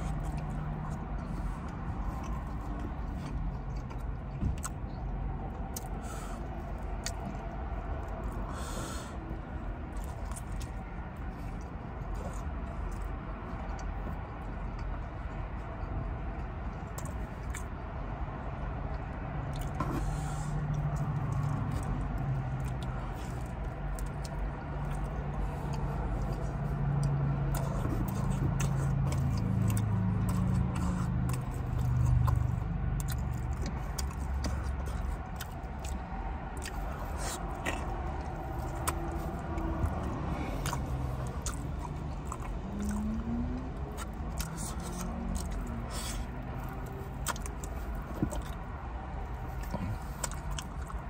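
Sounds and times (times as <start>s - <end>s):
chewing and biting pizza: 0.0s - 51.0s
wet mouth sounds: 19.4s - 51.0s.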